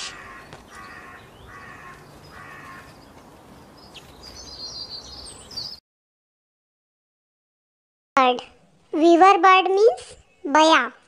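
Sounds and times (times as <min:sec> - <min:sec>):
quail calling: 0:00.0 - 0:03.0.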